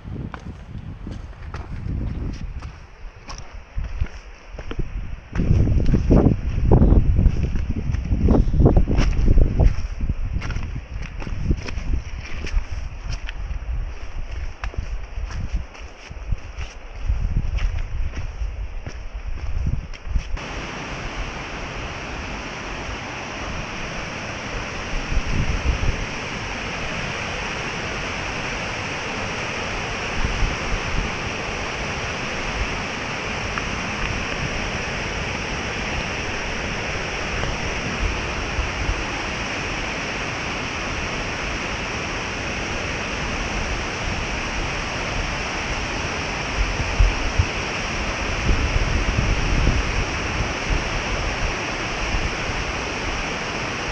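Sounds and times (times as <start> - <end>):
wind buffeting microphone: 0.0 - 53.9
running water rushing: 20.4 - 53.9.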